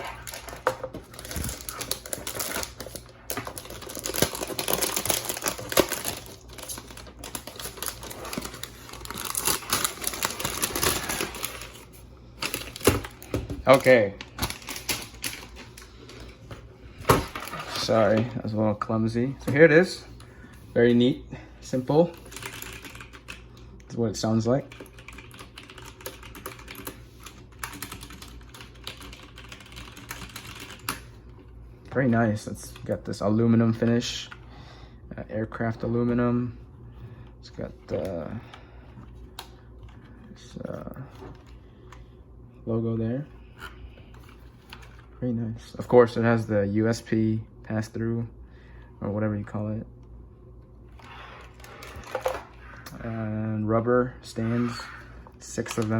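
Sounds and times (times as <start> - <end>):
packaging crinkling: 0.0 - 16.3
mechanical keyboard clattering: 22.3 - 23.4, 24.7 - 31.0.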